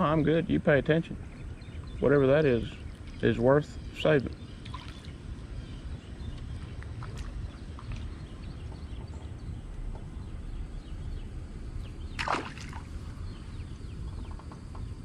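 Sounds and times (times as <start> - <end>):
wind and water rumble: 0.0 - 15.0
fish splash in water: 12.2 - 13.0.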